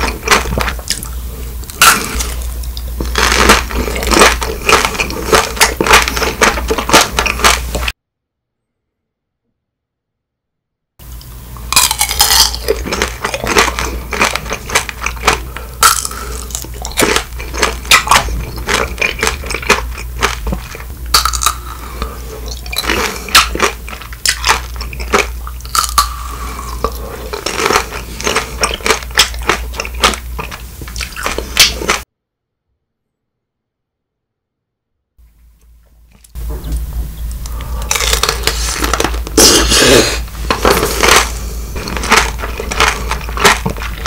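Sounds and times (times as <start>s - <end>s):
candy shell crunching: 0.0s - 8.0s, 11.7s - 32.0s, 37.3s - 44.0s
low hum: 0.0s - 44.0s.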